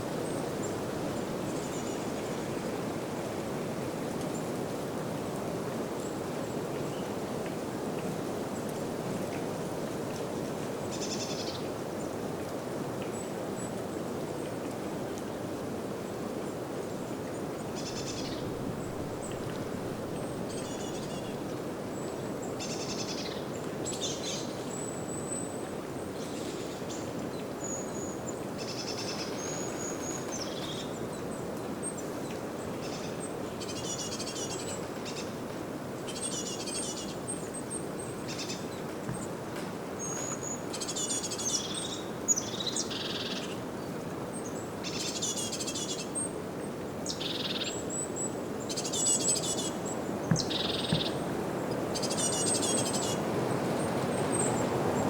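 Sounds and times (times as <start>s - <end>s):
wind through trees: 0.0s - 55.0s
small birds chirping: 47.1s - 54.8s.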